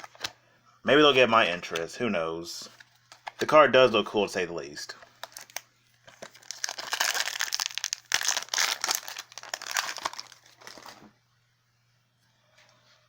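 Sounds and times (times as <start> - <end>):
foil wrapper crinkling: 5.0 - 11.1.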